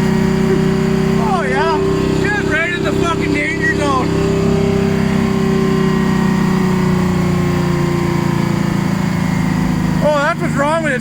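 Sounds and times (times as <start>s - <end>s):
heavy diesel engine idling: 0.0s - 11.0s.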